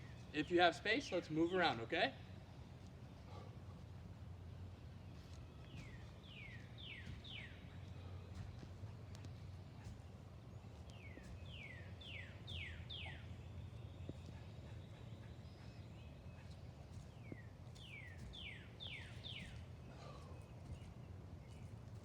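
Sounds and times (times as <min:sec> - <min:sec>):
low outdoor hum: 0:00.0 - 0:22.0
bird whistling song: 0:10.9 - 0:13.6.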